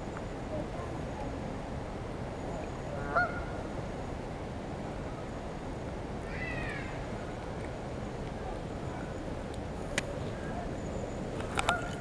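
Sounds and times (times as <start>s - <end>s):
steady background noise: 0.0s - 12.0s
bird honking call: 3.0s - 3.6s, 11.6s - 12.0s.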